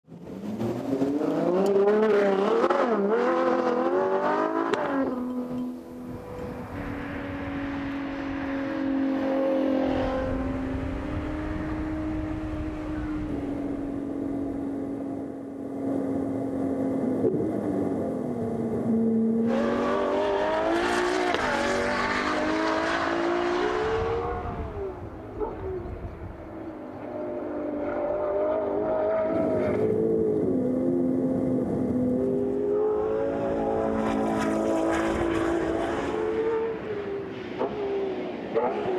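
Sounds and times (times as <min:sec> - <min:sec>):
car engine revving: 0:00.2 - 0:38.9.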